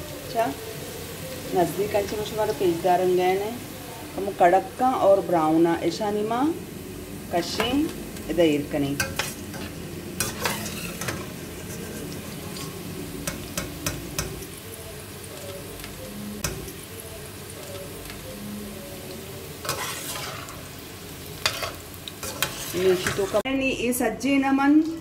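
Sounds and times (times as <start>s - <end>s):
vegetable slices sizzling in oil: 0.0s - 24.9s
spatula scraping a steel pot: 9.0s - 12.8s, 19.6s - 20.6s, 21.4s - 23.4s.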